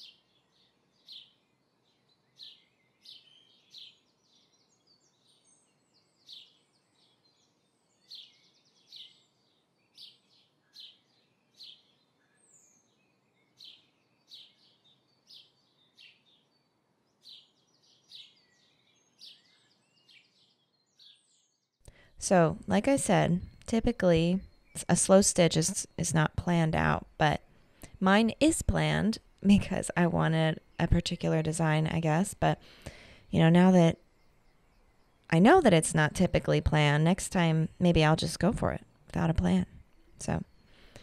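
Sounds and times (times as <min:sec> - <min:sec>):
bird chirps: 0:00.0 - 0:21.8.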